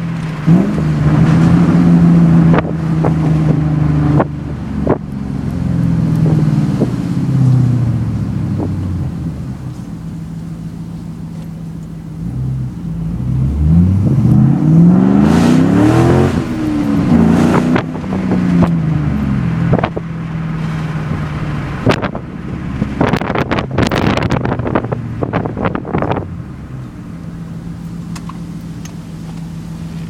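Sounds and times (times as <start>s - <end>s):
car engine accelerating: 0.0s - 30.0s
wind noise gusts: 15.3s - 26.4s.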